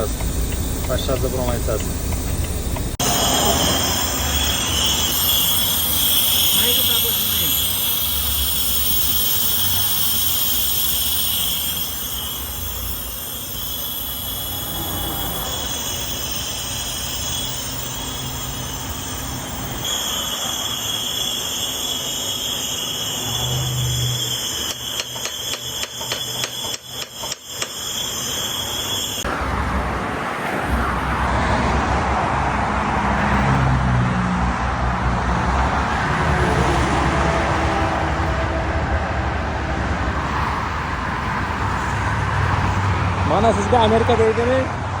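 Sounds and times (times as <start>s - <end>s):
engine rumble with high whine: 0.0s - 19.9s
road traffic rushing: 0.0s - 45.0s.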